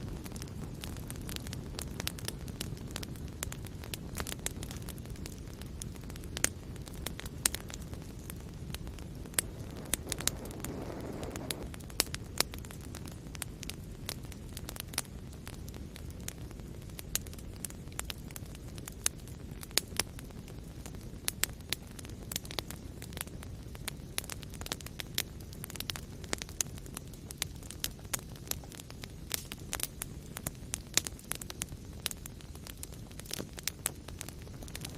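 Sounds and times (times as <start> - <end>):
fire crackling and popping: 0.0 - 34.9
soft hiss: 4.0 - 12.7.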